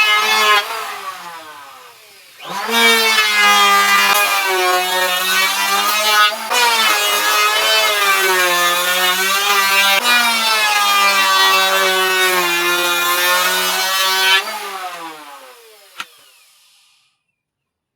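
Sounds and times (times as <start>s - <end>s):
power tool motor shaving wood: 0.0s - 17.2s
motor click: 15.9s - 17.0s.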